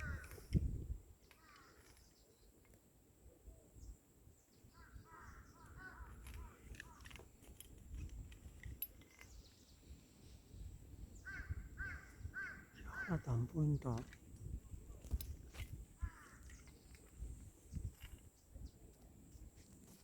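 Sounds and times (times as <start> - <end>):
bird calling: 0.0 - 0.6, 1.2 - 2.5, 4.6 - 7.3, 11.1 - 14.2, 16.0 - 17.2.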